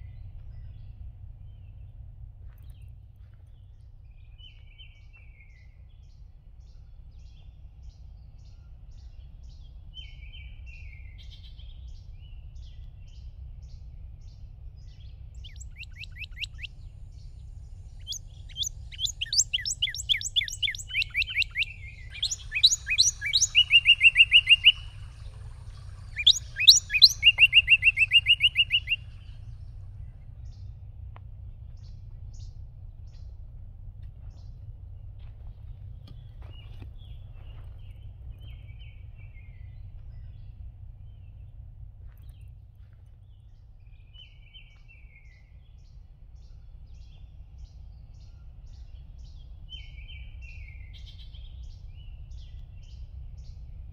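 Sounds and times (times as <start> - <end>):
songbird rapid trill: 14.2 - 30.7
faint high bird calls: 14.3 - 30.8.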